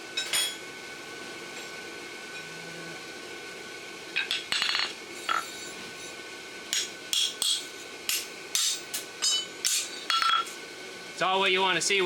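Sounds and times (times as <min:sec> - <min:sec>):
hammer striking metal on anvil: 0:06.7 - 0:10.5.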